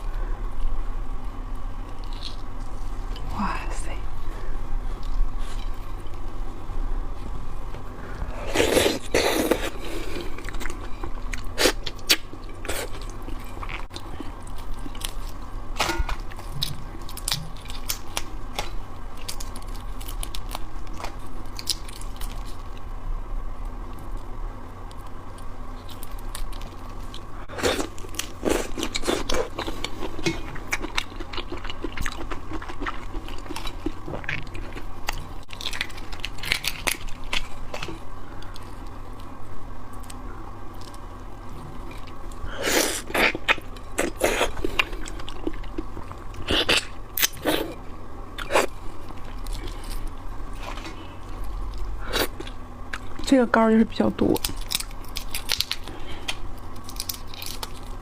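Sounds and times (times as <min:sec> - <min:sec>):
chewing and crunching: 0:01.8 - 0:03.4, 0:08.4 - 0:22.9, 0:23.9 - 0:53.4, 0:54.2 - 0:58.0.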